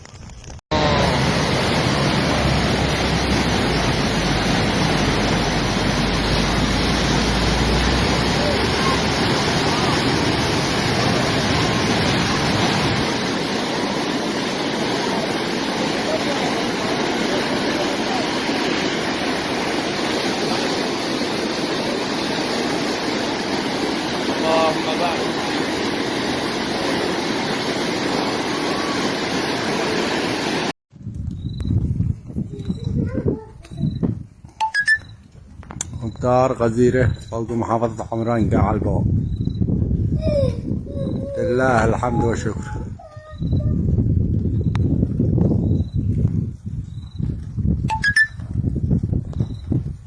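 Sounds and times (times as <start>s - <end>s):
water rushing: 0.7s - 30.8s, 47.9s - 48.4s.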